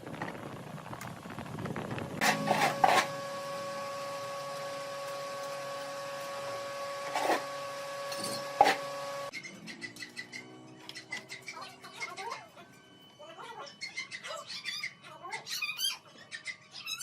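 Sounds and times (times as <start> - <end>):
electric motor whine: 1.2 - 9.3.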